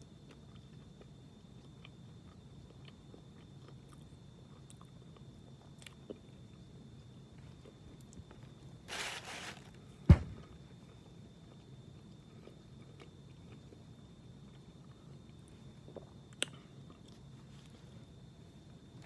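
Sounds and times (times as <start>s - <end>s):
man chewing with crunch: 0.0s - 9.2s, 10.8s - 18.2s
sharp knock: 10.1s - 10.4s.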